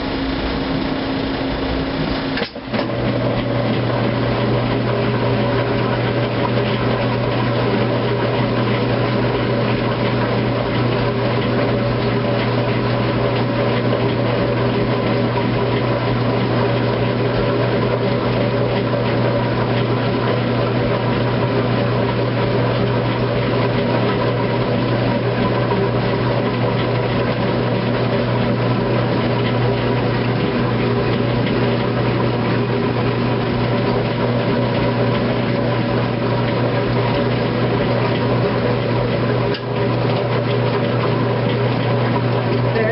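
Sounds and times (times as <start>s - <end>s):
washing machine and dryer humming: 0.0s - 42.9s.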